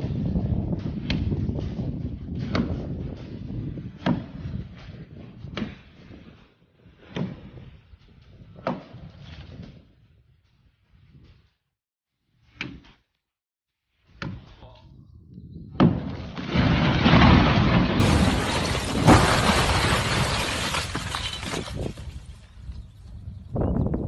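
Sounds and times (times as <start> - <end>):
loud crashing and breaking: 16.1 - 22.5.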